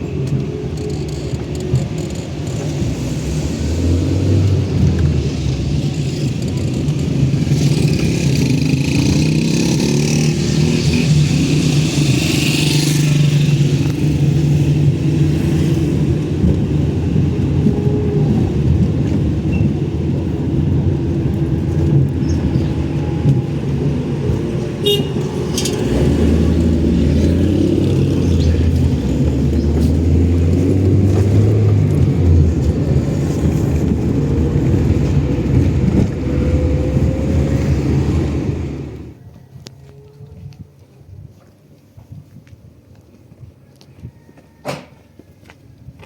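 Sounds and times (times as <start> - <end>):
road noise: 0.0 - 46.0.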